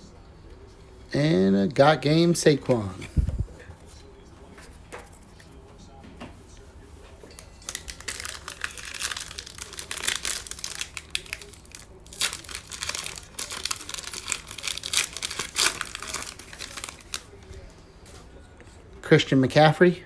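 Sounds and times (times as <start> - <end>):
wrapper crinkling and tearing: 7.3 - 17.7.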